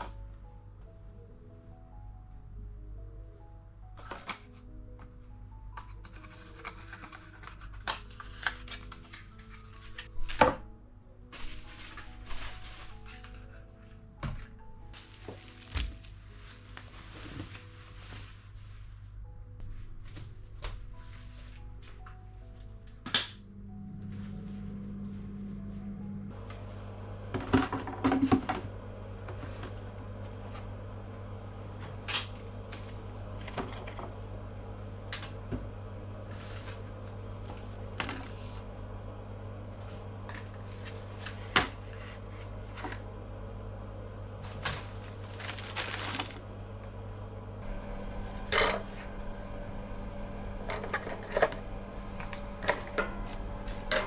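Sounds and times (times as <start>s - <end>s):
packages clicking and knocking: 14.4s - 16.2s
packaging rustling: 14.9s - 18.5s, 44.5s - 46.4s
low hum: 22.5s - 54.0s.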